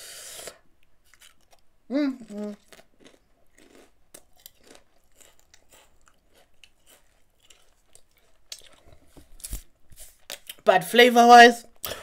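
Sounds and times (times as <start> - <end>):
chewing potato chips: 1.0 - 9.6.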